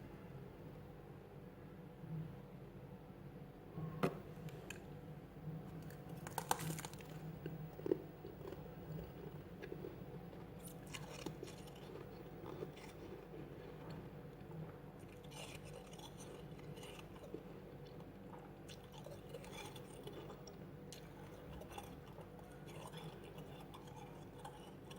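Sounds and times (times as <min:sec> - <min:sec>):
frost being chewed: 0:05.6 - 0:24.9.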